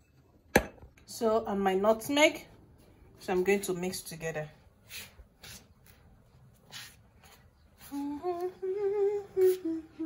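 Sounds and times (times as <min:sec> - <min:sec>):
woman humming a tune: 0:07.9 - 0:10.0.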